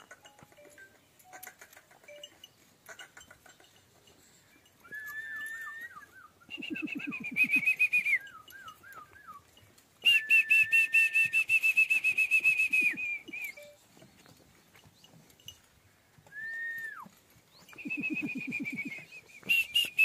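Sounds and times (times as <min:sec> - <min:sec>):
bird whistling falling notes: 0:17.7 - 0:20.0.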